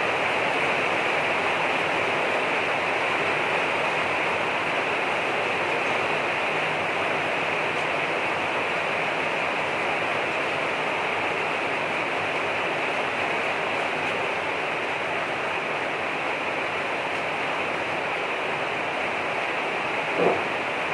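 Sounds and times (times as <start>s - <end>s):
rain falling steadily: 0.0s - 20.9s.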